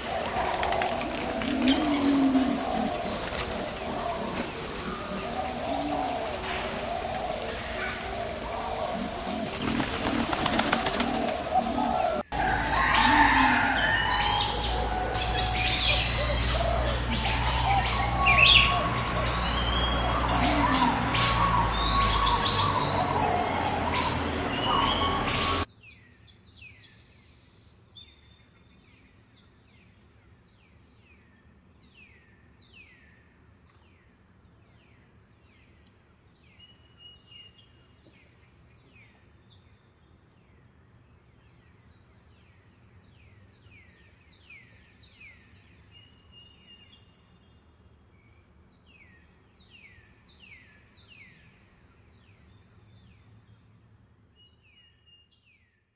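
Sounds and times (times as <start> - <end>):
bird chirping downward sweeps: 0.0 - 25.7
forest birdsong: 0.0 - 33.2, 36.4 - 55.9.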